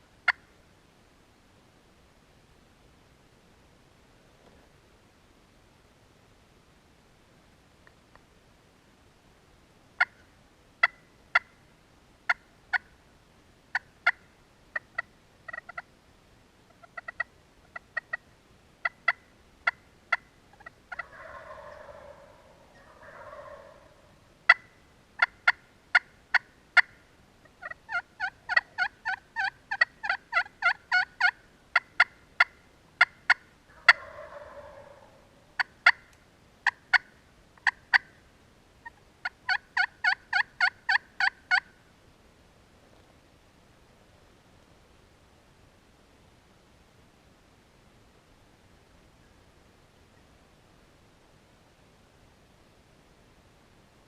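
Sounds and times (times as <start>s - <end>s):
turkey gobble: 0.2s - 0.5s, 10.0s - 10.2s, 10.8s - 11.6s, 12.3s - 12.9s, 13.7s - 15.9s, 16.7s - 18.2s, 18.8s - 38.2s, 38.8s - 41.8s
turkey yelping: 13.7s - 15.8s, 16.7s - 18.2s, 18.8s - 27.0s, 27.6s - 38.2s, 38.8s - 41.7s.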